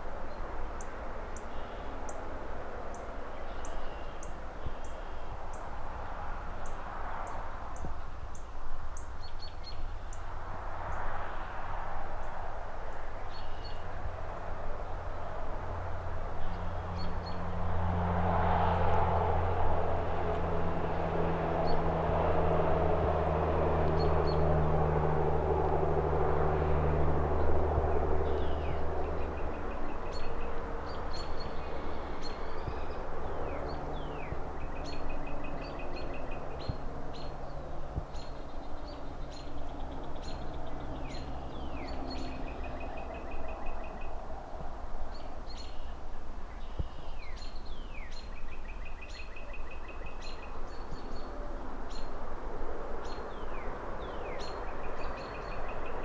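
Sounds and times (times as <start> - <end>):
traffic engine rumble: 0.0 - 56.0
small birds chirping: 45.1 - 52.1.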